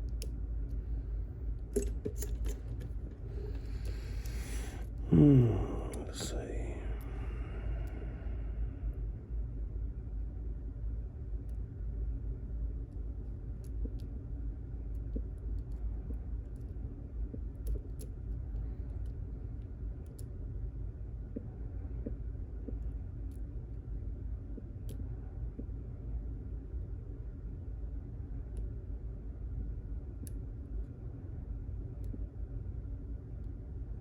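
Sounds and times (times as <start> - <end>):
low rumble: 0.7 - 11.4.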